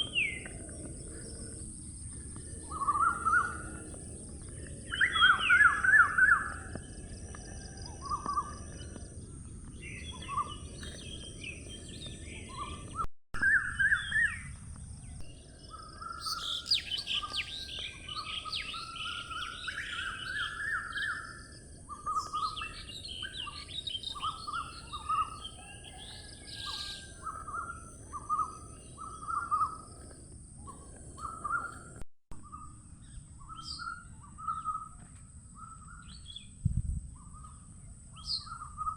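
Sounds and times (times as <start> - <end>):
wild birds chirping: 0.0 - 38.9
outdoor background hiss: 14.3 - 25.5.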